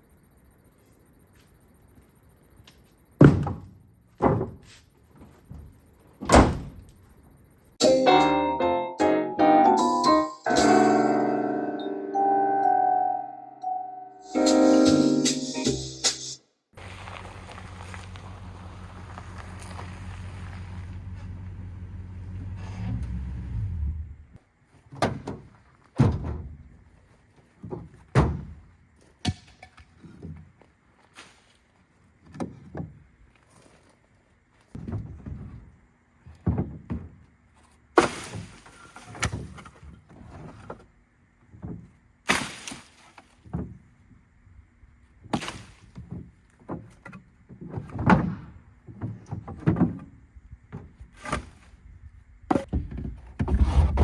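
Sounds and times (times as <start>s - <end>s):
keyboard music with piano notes: 7.8s - 16.2s
vehicle engine running: 16.8s - 24.3s
scrap wood thrown down: 36.3s - 40.9s, 45.2s - 54.0s.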